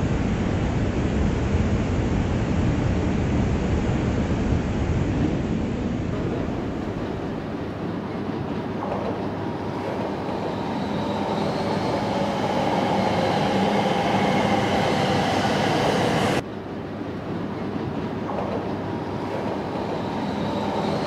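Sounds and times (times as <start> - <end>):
distant rail rumble: 4.7 - 21.0
train electric whine: 9.6 - 16.4, 18.4 - 21.0.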